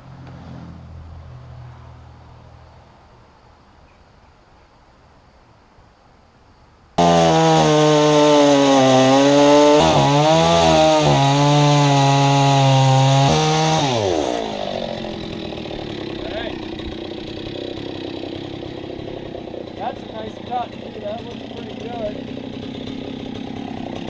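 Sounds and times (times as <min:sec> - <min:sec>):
chainsaw cutting: 0:07.0 - 0:24.0.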